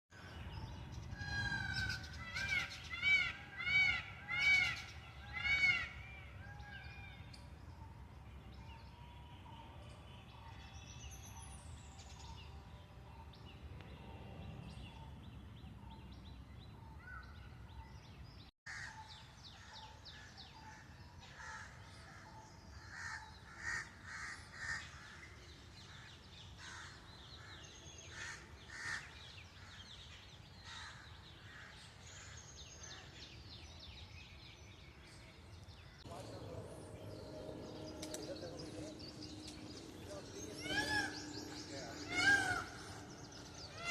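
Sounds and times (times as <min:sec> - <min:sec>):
loud arched bird calls: 0:00.2 - 0:07.3, 0:18.7 - 0:33.4, 0:35.8 - 0:43.9.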